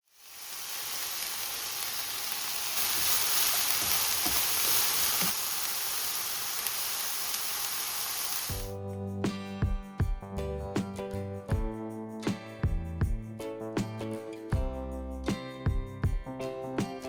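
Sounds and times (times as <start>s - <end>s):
peppers sizzling in a frying pan: 0.0s - 8.7s.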